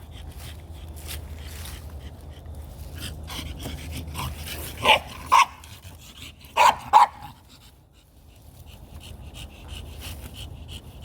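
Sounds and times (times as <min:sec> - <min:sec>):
dog barking: 0:04.8 - 0:05.6, 0:06.5 - 0:07.4.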